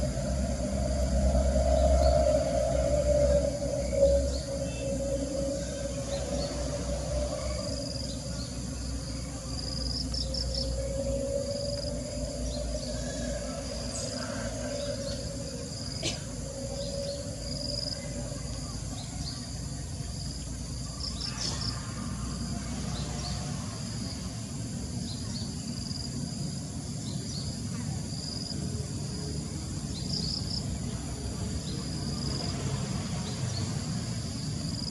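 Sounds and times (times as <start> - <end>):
insects trilling: 0.0 - 34.9
low insect drone: 0.0 - 34.9.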